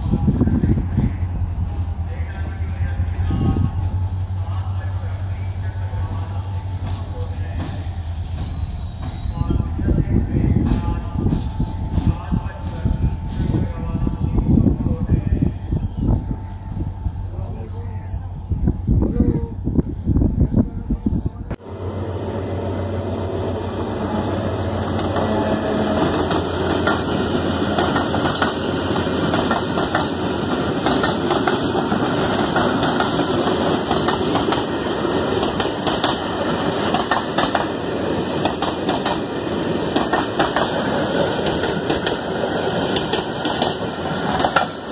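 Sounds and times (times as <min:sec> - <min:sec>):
train wheels rumbling on rails: 0:00.0 - 0:44.9
wheels clacking over rail joints: 0:25.0 - 0:44.9.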